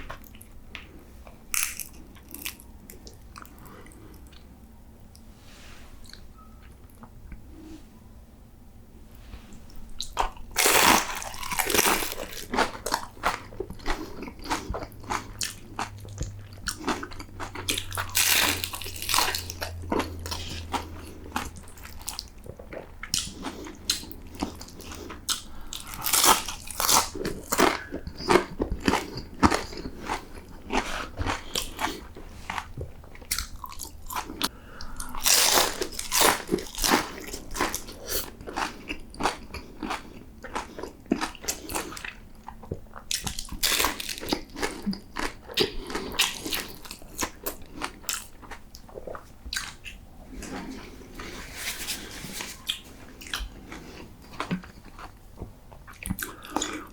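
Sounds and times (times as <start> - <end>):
crunching bites of fried food: 10.0 - 22.3.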